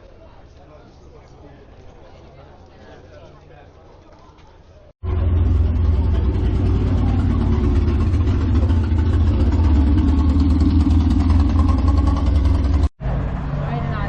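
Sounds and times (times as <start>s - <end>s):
car engine idling: 5.0s - 14.0s.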